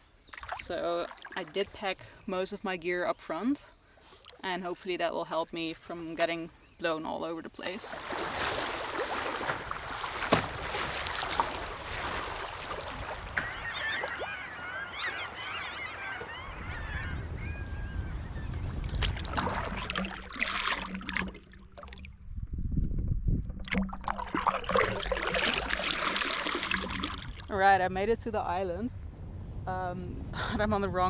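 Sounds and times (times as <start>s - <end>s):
water splashing: 0.3s - 1.9s, 7.5s - 22.2s, 23.6s - 27.6s
canoe paddle strokes: 3.9s - 4.4s, 7.4s - 17.6s, 18.2s - 22.0s, 24.0s - 27.4s
geese honking: 12.5s - 18.6s.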